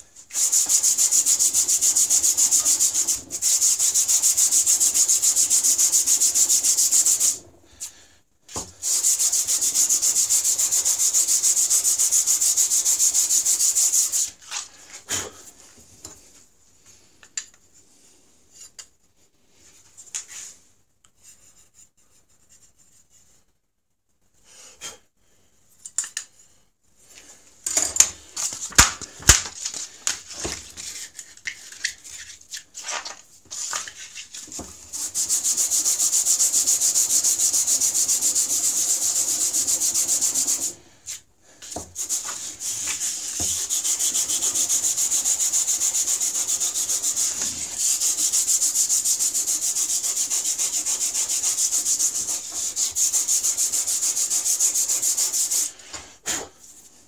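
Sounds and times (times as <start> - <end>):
stone rasping on sandpaper: 0.3 - 7.4, 8.8 - 14.4, 30.8 - 40.7, 42.0 - 55.8.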